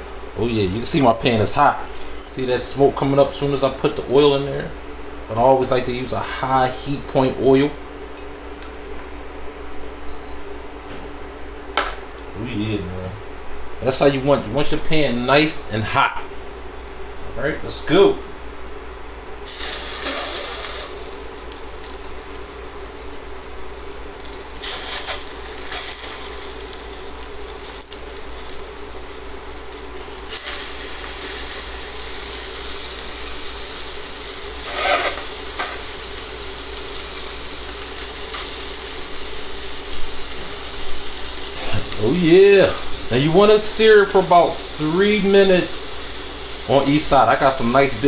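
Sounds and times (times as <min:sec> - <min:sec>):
steady low hum: 0:00.0 - 0:48.0
scallops sizzling in pan: 0:19.4 - 0:48.0.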